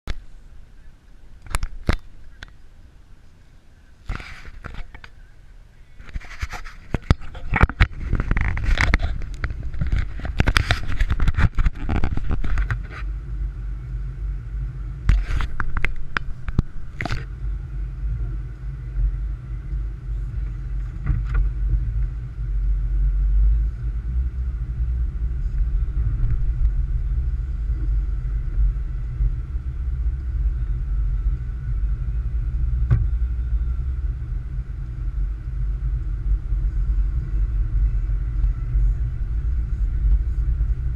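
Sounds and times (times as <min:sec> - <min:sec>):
car driving on snowy road: 0:00.0 - 0:40.9
knocks and rustles: 0:06.0 - 0:13.1.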